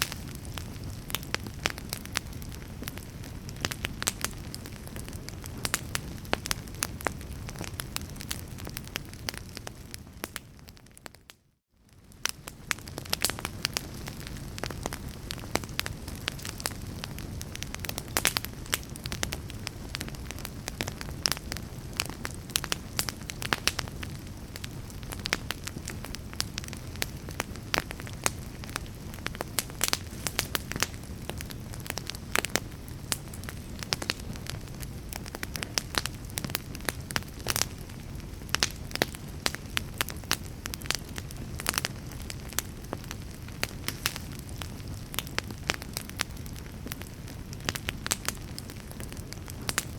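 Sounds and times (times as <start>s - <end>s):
fire crackling and popping: 0.0s - 49.9s
low fire rumble: 0.0s - 49.9s.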